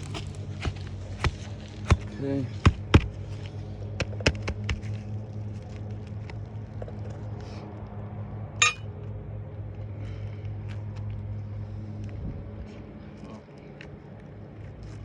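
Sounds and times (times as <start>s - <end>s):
steady low hum: 0.0s - 15.0s
short ringing clink: 8.6s - 8.8s.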